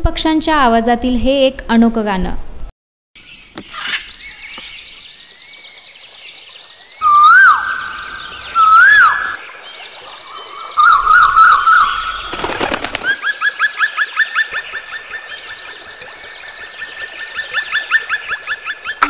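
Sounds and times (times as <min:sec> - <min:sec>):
whistled animal calls: 0:07.0 - 0:09.4.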